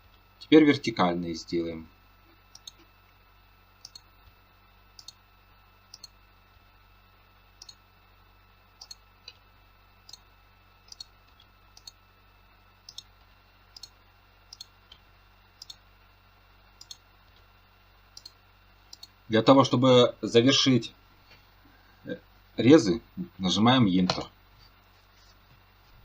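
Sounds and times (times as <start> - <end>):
faint electrical hum: 0.0 - 26.0
computer mouse clicks: 2.5 - 2.9, 3.8 - 4.1, 5.0 - 5.2, 5.9 - 6.2, 8.8 - 9.4, 10.9 - 12.0, 12.9 - 13.1, 13.8 - 15.0, 15.6 - 15.8, 16.8 - 17.0, 18.2 - 19.2.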